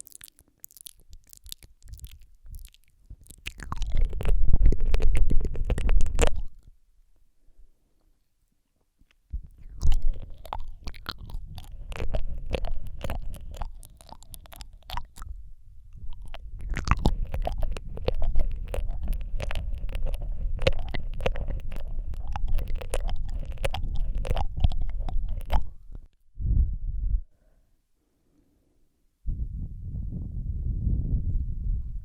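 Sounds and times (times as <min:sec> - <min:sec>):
wet lip smacks and tongue clicks: 0:00.0 - 0:06.7, 0:09.4 - 0:26.1
low rumble: 0:14.6 - 0:27.3, 0:29.3 - 0:32.0.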